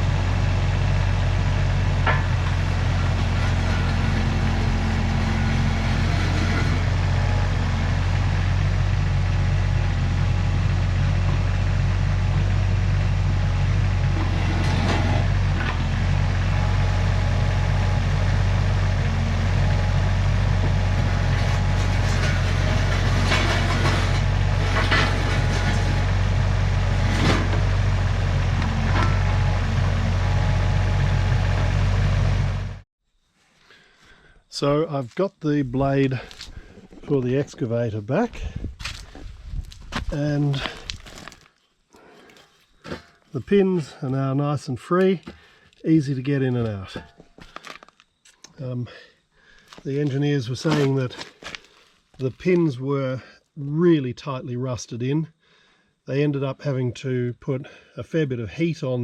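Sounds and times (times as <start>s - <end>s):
engine running: 0.0s - 32.9s, 35.7s - 41.4s
clanks and rattles: 2.0s - 7.1s, 14.0s - 15.9s, 21.0s - 26.2s, 26.9s - 27.9s.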